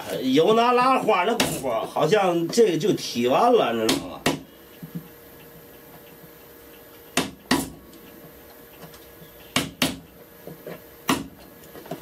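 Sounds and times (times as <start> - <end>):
chisel strikes on wood: 3.9 - 4.4, 7.1 - 7.7, 9.5 - 10.1, 11.1 - 11.3.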